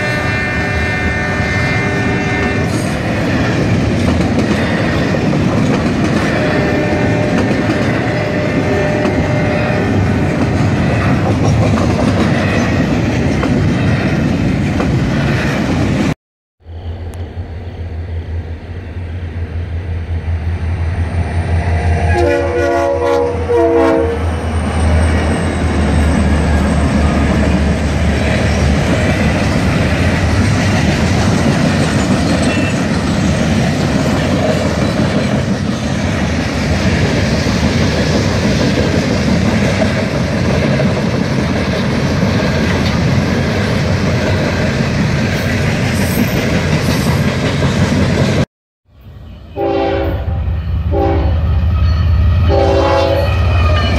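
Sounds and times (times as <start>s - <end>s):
locomotive air horn: 0.0s - 3.0s, 6.2s - 10.3s, 21.9s - 24.3s, 49.4s - 53.9s
freight train rumbling: 0.0s - 53.9s.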